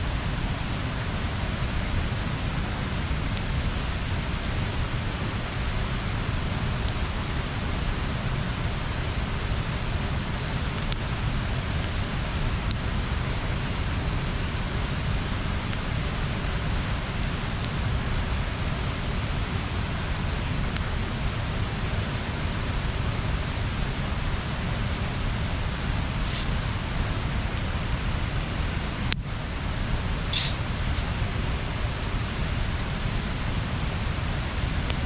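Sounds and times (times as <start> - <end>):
bonfire rushing: 0.0 - 35.0
fire crackles and pops: 0.0 - 35.0
short hiss: 3.6 - 4.4, 26.1 - 26.7, 30.3 - 31.4.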